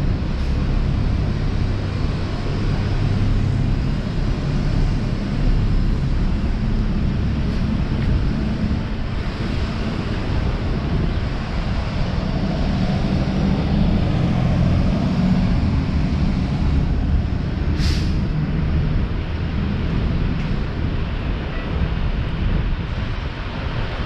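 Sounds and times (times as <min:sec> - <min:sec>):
low street rumble: 0:00.0 - 0:24.0
short hiss: 0:17.8 - 0:18.2.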